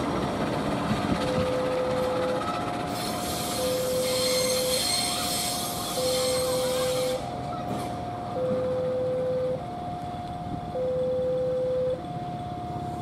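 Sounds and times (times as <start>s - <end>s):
level-crossing alarm two tones: 1.3s - 7.4s, 8.2s - 13.0s
train wheels squealing on rails: 1.4s - 8.0s.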